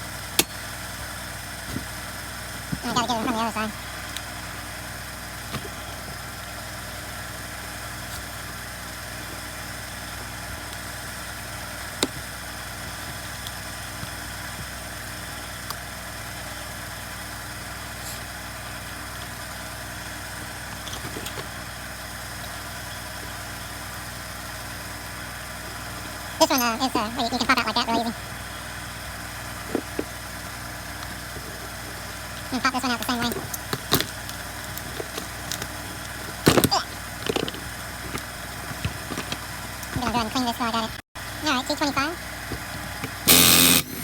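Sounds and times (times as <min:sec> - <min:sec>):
machine hum: 0:20.2 - 0:44.0
screwdriver tapping: 0:33.0 - 0:40.1.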